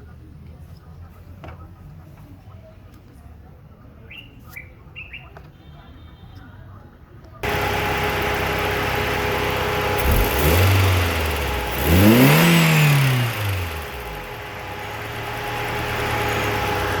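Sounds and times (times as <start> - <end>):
car engine idling and revving: 7.4 - 17.0.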